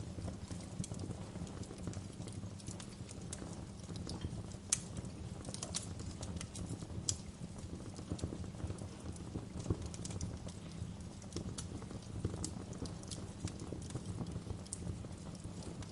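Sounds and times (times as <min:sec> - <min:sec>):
low steady rumble: 0:00.0 - 0:15.9
wood fire crackling: 0:00.0 - 0:15.9.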